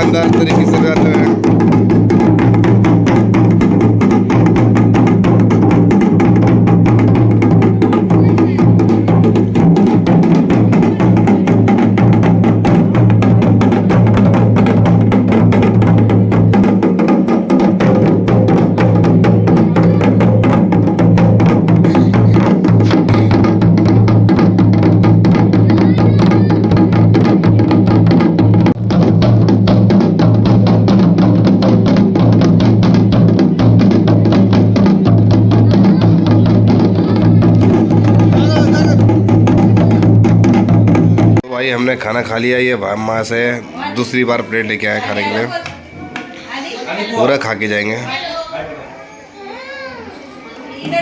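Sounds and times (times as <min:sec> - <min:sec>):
drums beaten fast: 0:00.0 - 0:43.2.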